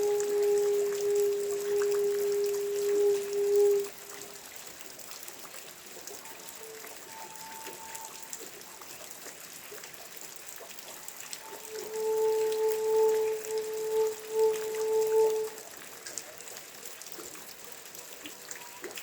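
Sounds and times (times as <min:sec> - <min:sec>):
steady low humming tone: 0:00.0 - 0:03.9, 0:11.4 - 0:15.6
rain falling and dripping: 0:00.0 - 0:19.0.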